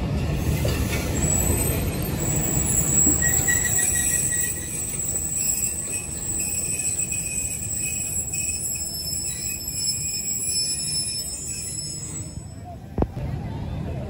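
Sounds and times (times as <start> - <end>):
train wheels rumbling on rails: 0.0 - 13.2
thin high-pitched ringing tones: 2.2 - 12.8.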